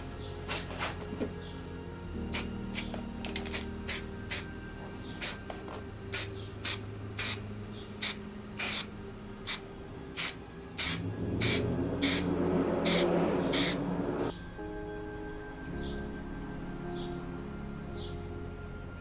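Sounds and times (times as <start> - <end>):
short sharp hissing bursts: 6.2 - 7.4, 8.0 - 8.9, 10.2 - 13.8.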